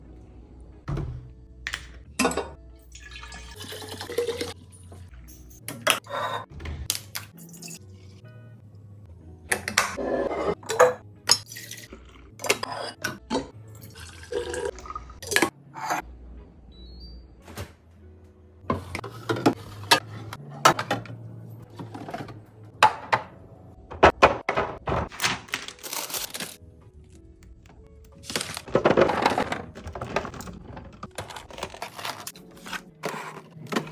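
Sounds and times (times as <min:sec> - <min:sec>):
liquid pouring into a container: 0:02.9 - 0:04.5
plastic and glass clattering: 0:28.2 - 0:33.9
containers knocking and clinking: 0:28.6 - 0:31.6.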